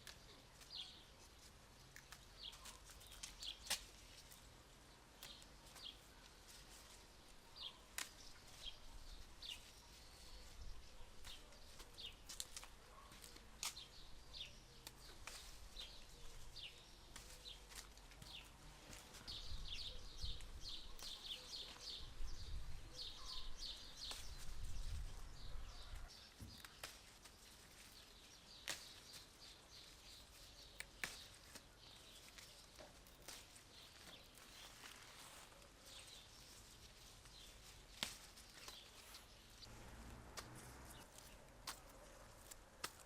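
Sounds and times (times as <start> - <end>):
small birds chirping: 0.0 - 43.0
low rumble: 39.7 - 41.1.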